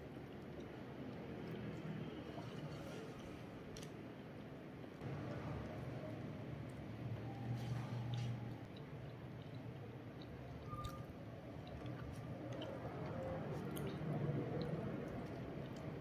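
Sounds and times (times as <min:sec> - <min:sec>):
wet chewing: 0:08.0 - 0:16.0.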